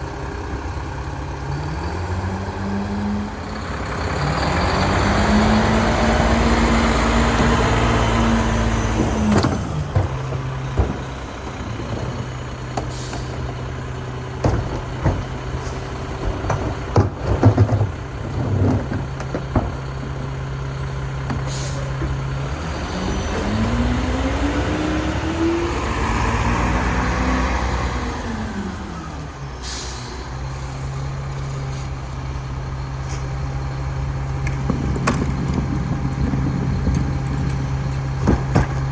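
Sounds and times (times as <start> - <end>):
diesel truck engine idling and revving: 0.0 - 38.9
air hissing bursts: 12.9 - 13.4.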